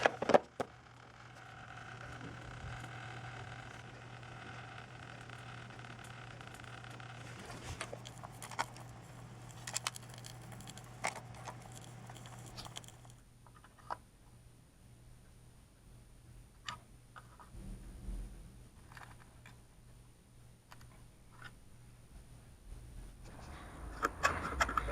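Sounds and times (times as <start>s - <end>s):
electrical buzz from socket: 0.0s - 13.2s.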